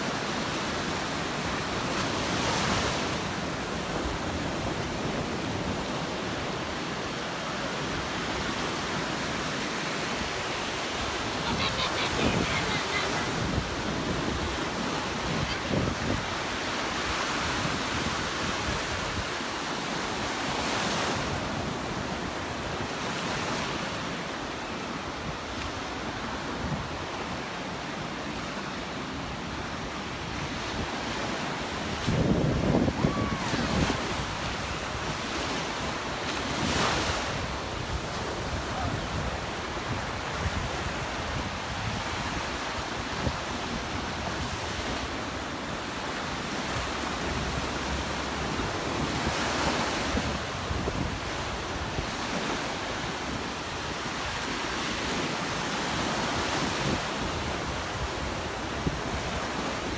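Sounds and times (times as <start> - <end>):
surf breaking on beach: 0.0 - 59.9
wind buffeting microphone: 11.0 - 19.3, 31.9 - 45.4, 46.7 - 53.4.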